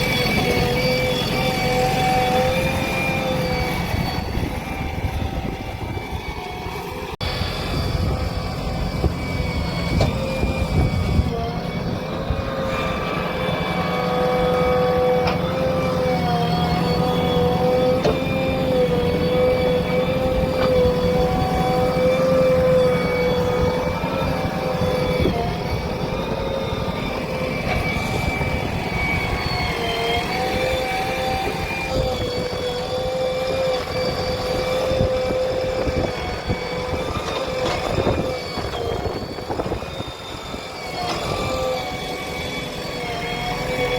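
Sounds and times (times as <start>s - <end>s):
diesel engines rumbling under load: 0.0s - 43.9s
high engine whine: 0.0s - 43.9s.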